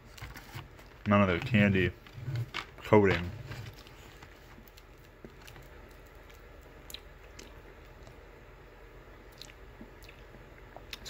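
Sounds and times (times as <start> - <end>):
low steady hum: 0.0 - 11.0
faint chewing of candy: 3.6 - 8.2, 9.2 - 11.0.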